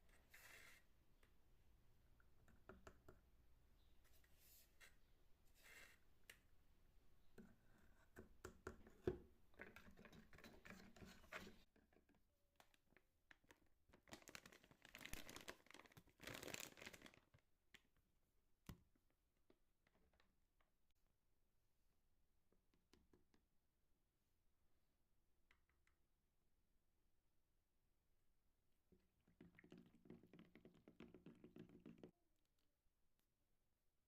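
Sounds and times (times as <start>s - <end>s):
rustling and scraping handling: 9.6s - 11.7s.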